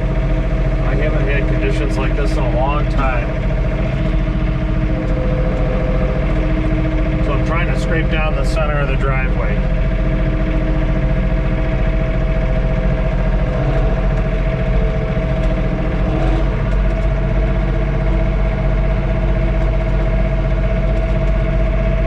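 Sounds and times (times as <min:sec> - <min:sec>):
steady whine: 0:00.0 - 0:22.0
tractor diesel engine running: 0:00.0 - 0:22.0.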